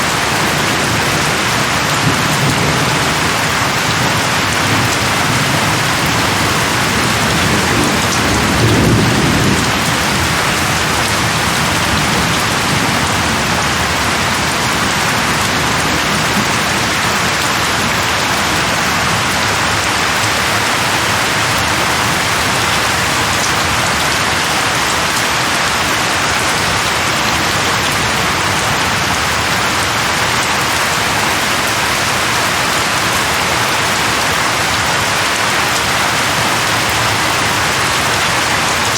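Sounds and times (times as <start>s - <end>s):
heavy rain: 0.0s - 38.9s
low roll of thunder: 1.9s - 16.6s.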